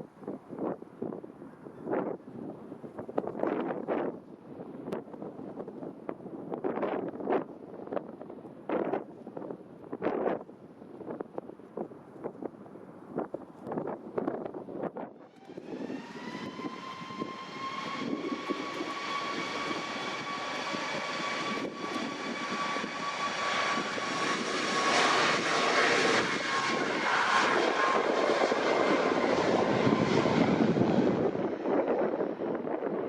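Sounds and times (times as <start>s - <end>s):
jet engine whine: 0.4s - 33.0s
jet roar: 13.8s - 33.0s.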